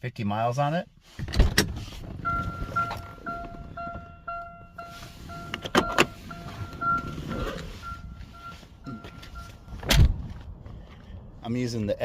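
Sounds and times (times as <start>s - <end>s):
car warning chime beeping: 2.2s - 9.9s.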